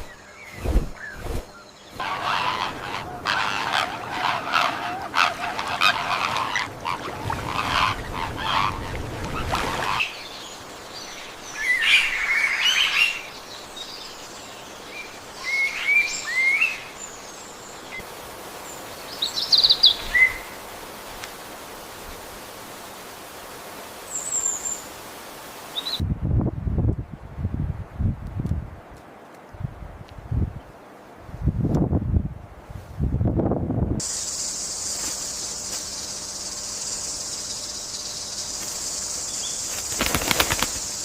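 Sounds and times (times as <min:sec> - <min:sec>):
bird calls: 0:00.0 - 0:13.4
faint forest background: 0:00.0 - 0:41.0.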